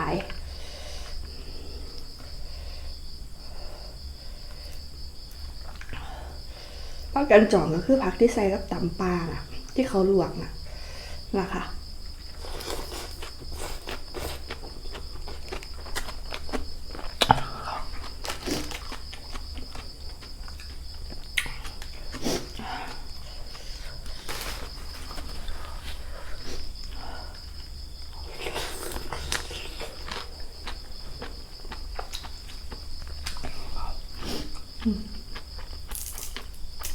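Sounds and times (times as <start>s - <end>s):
insect trill: 0.0s - 36.9s
chewing crunches: 12.2s - 27.0s, 27.6s - 36.9s.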